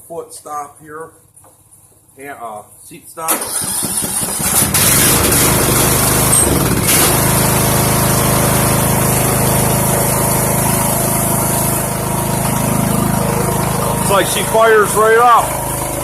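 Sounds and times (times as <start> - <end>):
riding mower engine starting: 3.3 - 16.0.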